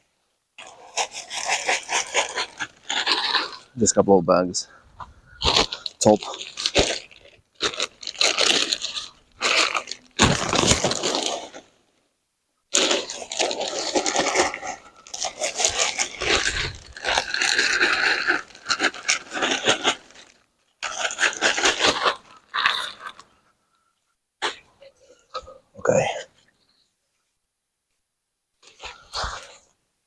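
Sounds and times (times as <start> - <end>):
gritty scraping of soil: 0.6 - 11.8, 12.7 - 23.2.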